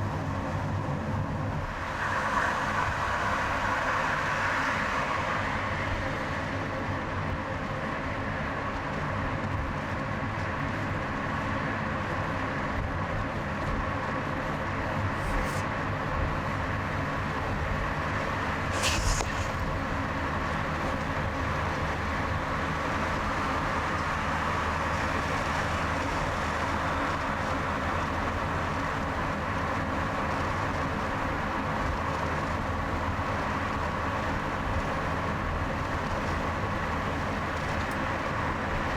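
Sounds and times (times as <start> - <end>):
car road and engine noise: 0.0 - 38.9
brief sharp sound: 18.7 - 19.7.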